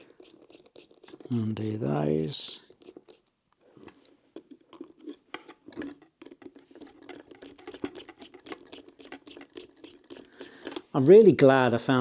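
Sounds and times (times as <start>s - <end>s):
screwdriver clicking on screws: 4.8s - 11.1s.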